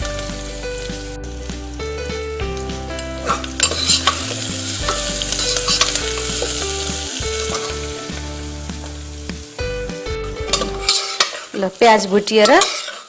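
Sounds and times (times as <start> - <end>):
onions sizzling in oil: 3.2 - 9.8, 10.5 - 13.0
spoon scraping and tapping pot: 10.5 - 11.5, 12.4 - 13.0.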